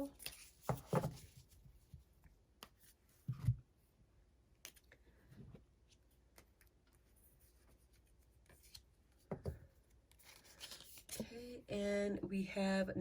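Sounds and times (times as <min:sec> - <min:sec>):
cards clicking and rustling: 0:00.1 - 0:01.4, 0:10.1 - 0:11.3.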